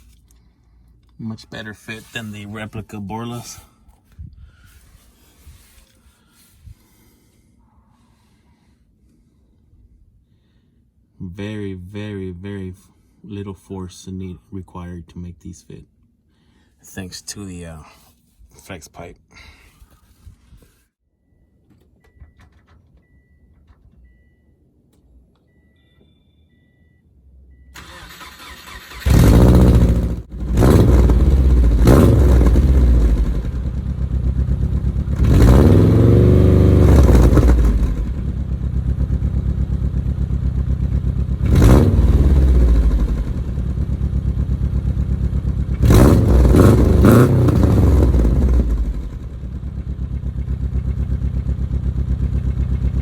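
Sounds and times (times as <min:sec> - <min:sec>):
faint beeping: 0:21.2 - 0:27.8
car engine cranking and starting: 0:21.6 - 0:26.6, 0:27.3 - 0:53.0
car engine idling and revving: 0:27.3 - 0:53.0.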